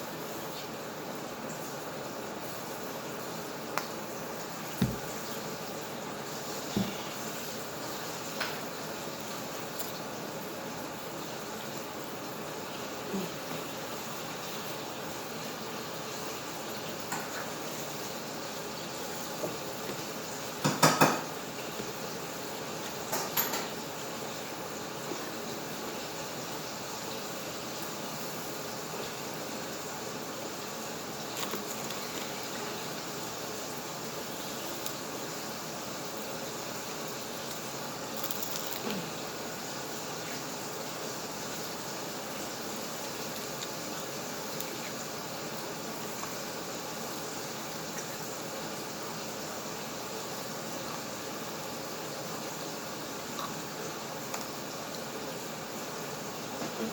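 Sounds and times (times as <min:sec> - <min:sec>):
utensils clattering on dishes: 0:23.1 - 0:23.8.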